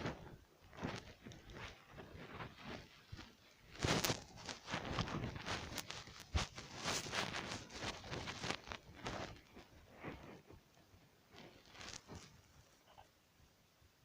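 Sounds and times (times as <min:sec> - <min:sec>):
footsteps crunching: 0:00.0 - 0:10.7, 0:11.3 - 0:12.5
clothing and gear rustling: 0:00.0 - 0:12.8.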